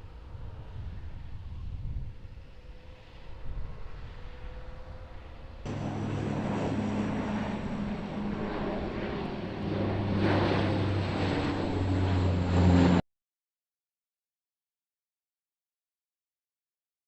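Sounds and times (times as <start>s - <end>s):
propeller aircraft engine drone: 0.0s - 13.0s.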